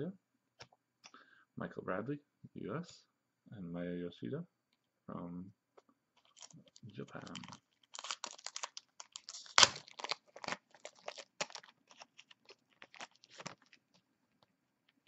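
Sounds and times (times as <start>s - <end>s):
foil pack tearing and crinkling: 6.2s - 6.6s, 7.2s - 13.8s.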